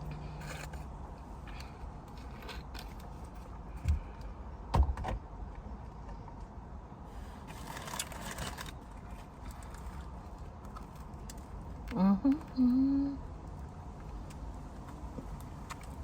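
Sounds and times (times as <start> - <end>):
car interior low rumble: 0.0 - 16.0
rustling handling noise: 7.2 - 11.8.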